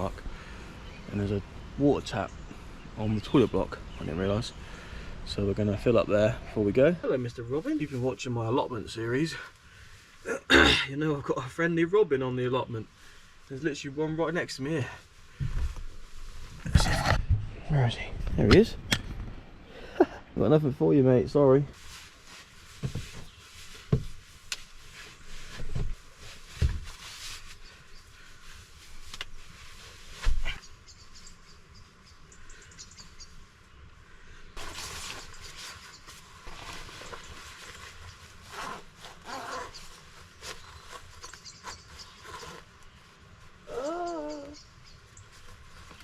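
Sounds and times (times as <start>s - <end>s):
sharp knocks and thuds: 22.8s - 23.3s, 23.9s - 24.2s, 25.6s - 27.0s
faint bird chirps: 39.2s - 45.5s.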